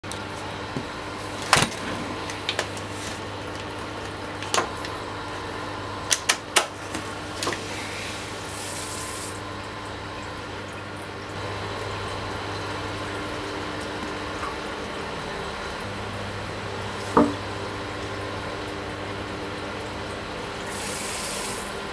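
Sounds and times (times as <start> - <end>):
aquarium pump humming: 0.0 - 21.9
water noise: 0.0 - 21.9.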